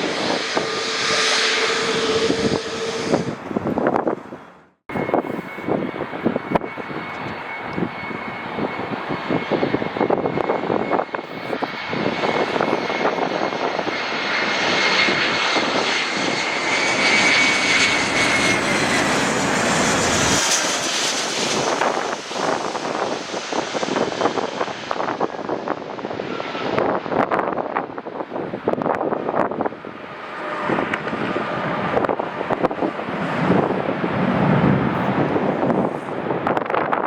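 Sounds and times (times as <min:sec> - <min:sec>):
jet engine high whine: 0:00.0 - 0:37.0
jet engines roaring: 0:00.0 - 0:37.0
wind buffeting microphone: 0:00.0 - 0:37.0.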